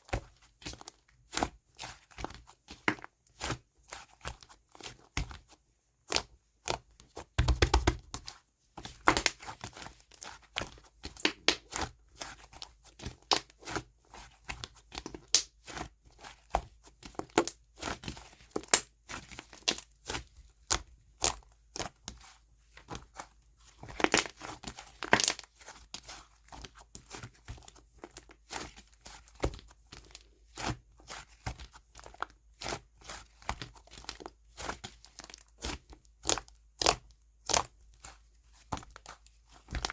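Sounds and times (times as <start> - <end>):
slime crackling and popping: 9.0 - 9.4, 15.3 - 15.5, 24.0 - 24.4, 25.0 - 25.5.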